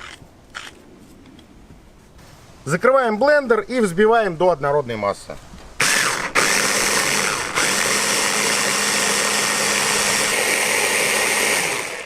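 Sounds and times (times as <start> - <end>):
electric blender running: 5.8 - 12.0.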